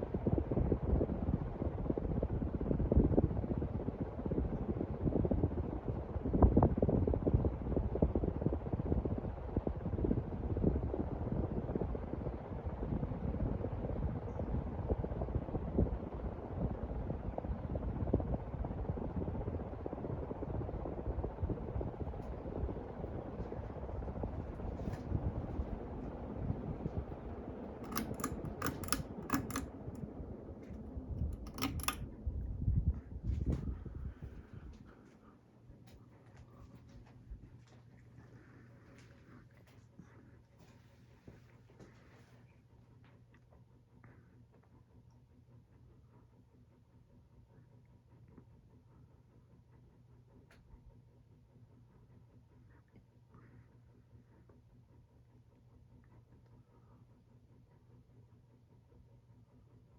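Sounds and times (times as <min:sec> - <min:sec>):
airflow buffeting microphone: 0:00.0 - 0:35.1
ceiling fan running: 0:00.0 - 0:43.1
sharp clicks: 0:27.9 - 0:29.7, 0:31.2 - 0:32.0.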